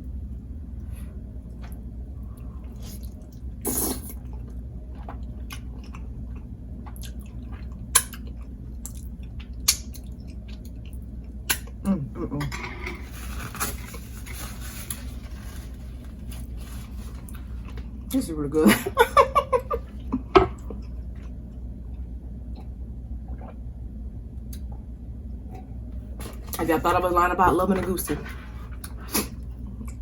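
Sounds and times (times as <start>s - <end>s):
person chewing food: 1.4s - 11.8s.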